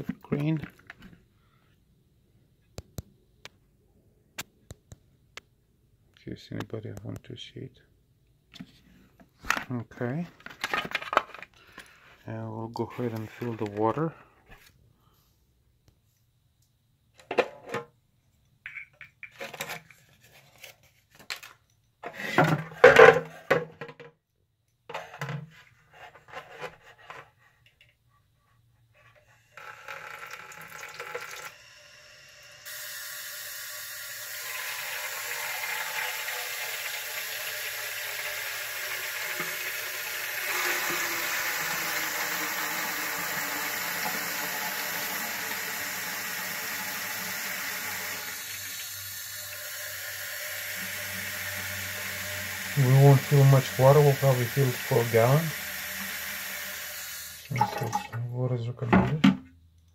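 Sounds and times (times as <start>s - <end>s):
tap water running into tank: 29.6s - 31.6s, 32.6s - 58.2s.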